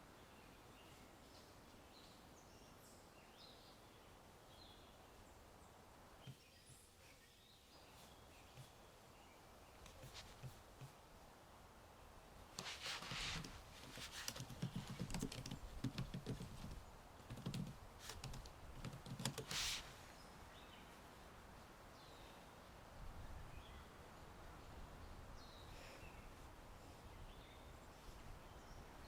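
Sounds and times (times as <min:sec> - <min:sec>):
typing on computer keyboard: 0:13.9 - 0:19.5
faint bird chirps: 0:25.0 - 0:29.0.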